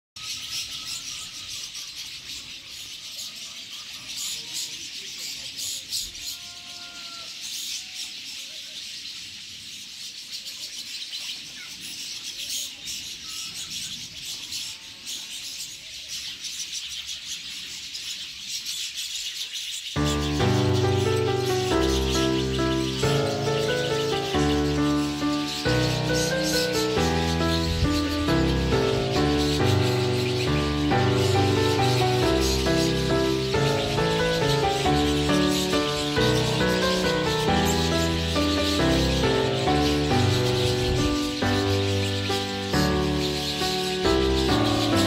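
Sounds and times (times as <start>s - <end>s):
small birds chirping: 0.2s - 45.0s
whistled bird notes: 0.2s - 45.0s.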